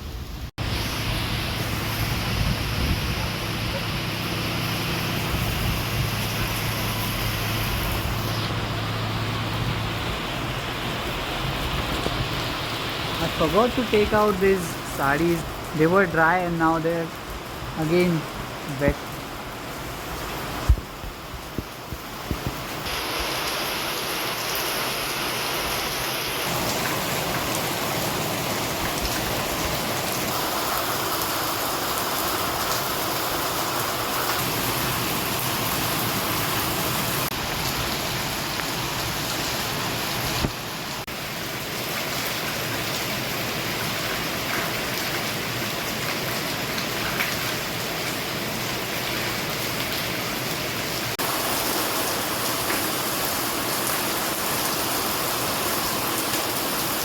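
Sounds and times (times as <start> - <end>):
heavy rain falling: 0.0 - 57.0
rain drop ticks: 38.5 - 38.9, 43.8 - 48.2.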